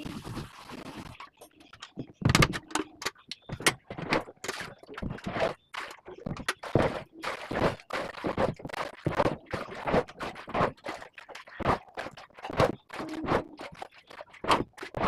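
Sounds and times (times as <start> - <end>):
short scrapes and knocks: 3.6 - 15.0.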